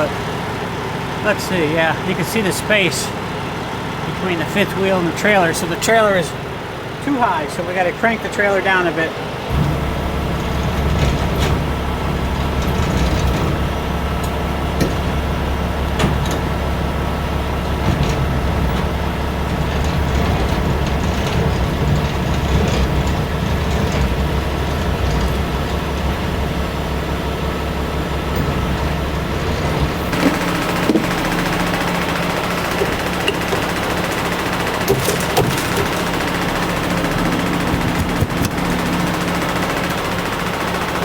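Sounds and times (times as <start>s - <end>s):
truck engine idling: 0.0s - 41.0s
metallic crank clicks and clunks: 30.1s - 38.8s.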